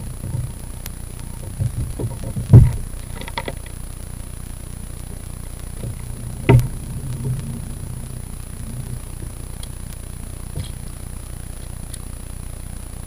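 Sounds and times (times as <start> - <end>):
faint clicking: 0.0 - 13.0
steady low rumble: 0.0 - 13.0
knocks: 1.5 - 3.5, 6.4 - 7.4
loud thump: 5.8 - 9.4.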